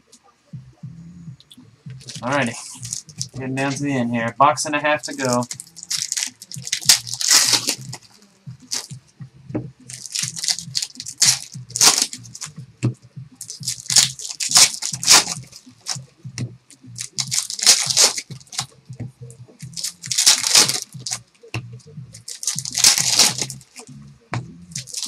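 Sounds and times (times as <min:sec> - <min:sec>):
faint low hum: 0:00.0 - 0:25.0
foil wrappers tearing and crinkling: 0:02.0 - 0:03.3, 0:05.0 - 0:08.0, 0:08.7 - 0:08.9, 0:09.9 - 0:12.5, 0:13.4 - 0:16.0, 0:17.0 - 0:18.7, 0:19.8 - 0:21.2, 0:22.2 - 0:23.8, 0:24.8 - 0:25.0.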